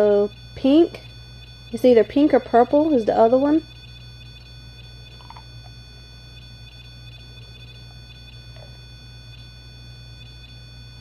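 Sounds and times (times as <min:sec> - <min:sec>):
thin steady electronic tone: 0:00.0 - 0:11.0.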